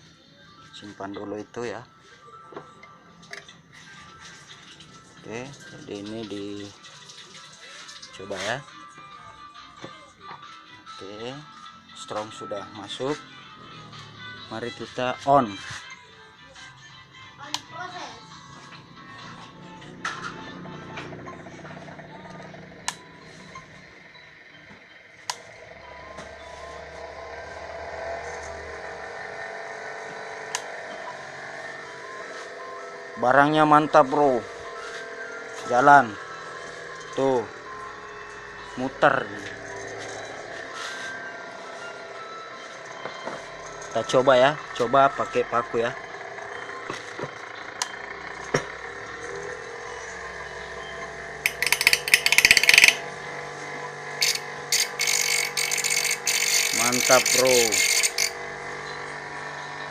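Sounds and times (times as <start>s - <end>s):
bench grinder motor whirring: 51.1s - 53.1s, 54.2s - 59.5s.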